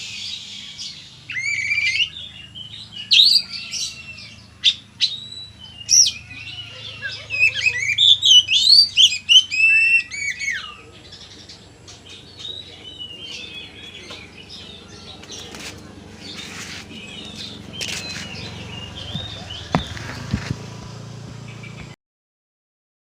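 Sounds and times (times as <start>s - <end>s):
bird whistled song: 0.0s - 11.4s, 16.2s - 20.2s
bird chirps and twitters: 0.0s - 22.0s
rustling: 15.2s - 20.9s
sharp knocks: 19.1s - 20.8s.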